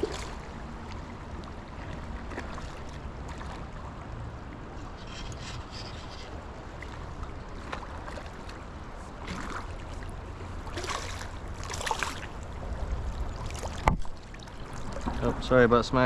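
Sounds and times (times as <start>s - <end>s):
river current running: 0.0s - 16.0s
fish splashing: 9.2s - 12.4s.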